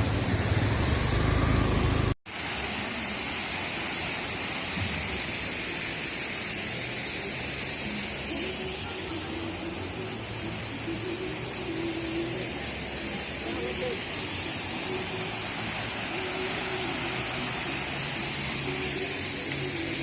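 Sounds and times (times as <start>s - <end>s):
rushing water hiss: 0.0s - 20.0s.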